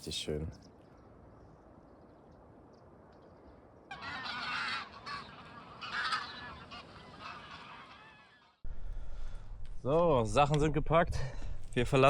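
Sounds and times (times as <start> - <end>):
geese honking: 3.9 - 8.6.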